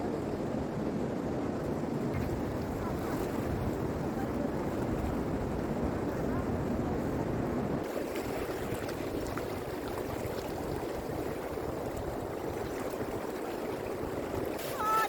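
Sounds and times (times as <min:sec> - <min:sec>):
rushing water: 0:02.2 - 0:15.0.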